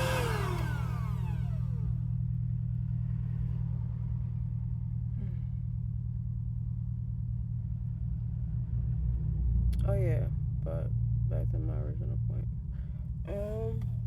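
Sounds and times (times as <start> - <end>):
vacuum cleaner motor winding down: 0.0 - 2.0
steady low rumble: 0.0 - 14.0.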